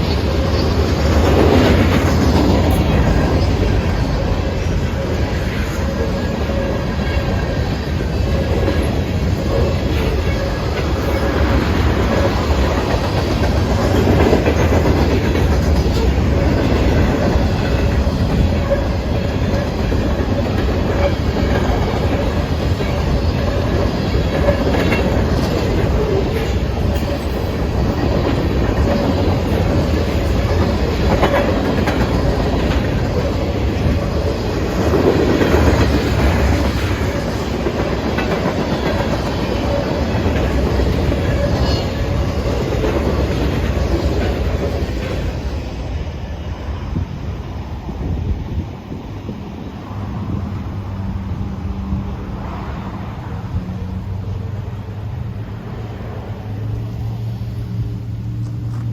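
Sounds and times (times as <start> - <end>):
train wheels clacking over rail joints: 0.0 - 45.7.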